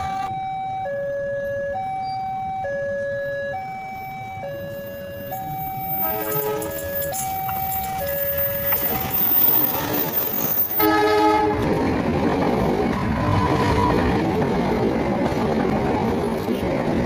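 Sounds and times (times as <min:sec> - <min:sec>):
train passing on rails: 0:04.0 - 0:17.0
locomotive horn chord: 0:06.0 - 0:06.8, 0:10.8 - 0:11.7.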